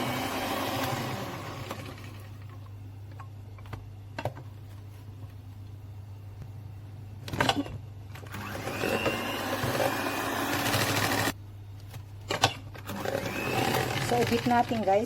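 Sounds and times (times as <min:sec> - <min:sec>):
electric mixer beating butter: 0:00.0 - 0:02.2, 0:08.4 - 0:11.4, 0:12.9 - 0:14.9.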